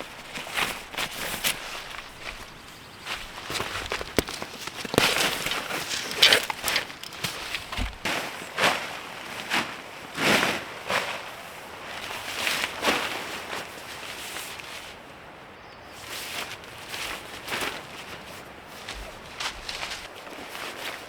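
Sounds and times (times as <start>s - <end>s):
rustling and crunching: 0.0s - 9.8s, 17.0s - 21.0s.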